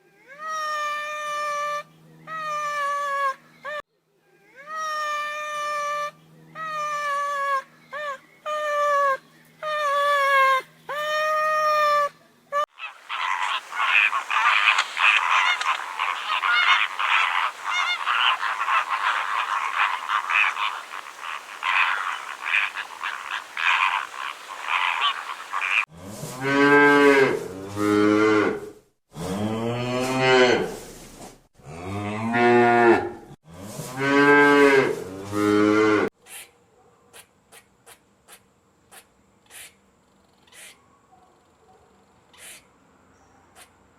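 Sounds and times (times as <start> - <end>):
poultry calling and honking: 12.7 - 25.9.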